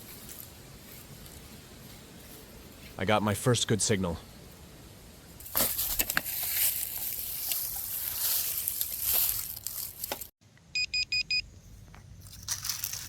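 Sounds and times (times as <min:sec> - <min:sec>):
rustling and scraping: 0:05.4 - 0:10.3, 0:11.9 - 0:13.0
metal detector beeps: 0:10.7 - 0:11.5.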